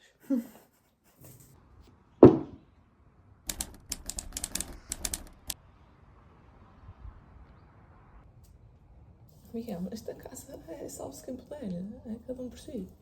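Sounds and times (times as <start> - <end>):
loud thump: 2.2 - 2.6
sharp clicks: 3.5 - 5.6.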